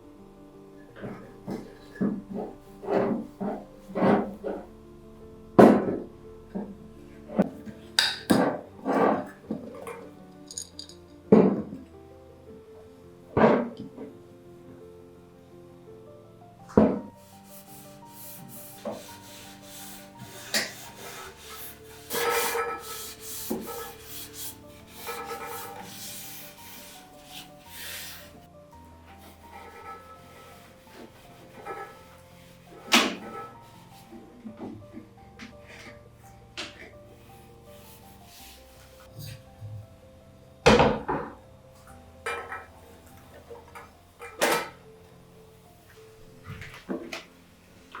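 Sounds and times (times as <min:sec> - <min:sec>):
soft background music: 0:00.0 - 0:48.0
rubbing scraping strokes: 0:17.2 - 0:28.5, 0:29.1 - 0:34.2.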